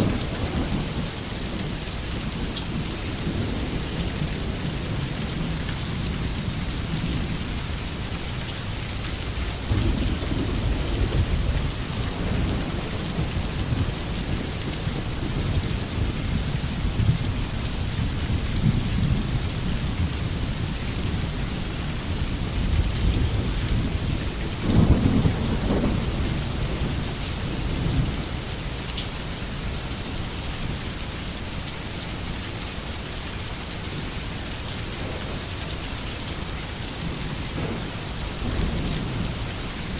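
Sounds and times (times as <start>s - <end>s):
thunder rolling: 0.0s - 3.7s, 9.6s - 17.2s, 22.5s - 28.2s, 37.1s - 39.5s
rain hissing: 0.0s - 39.9s.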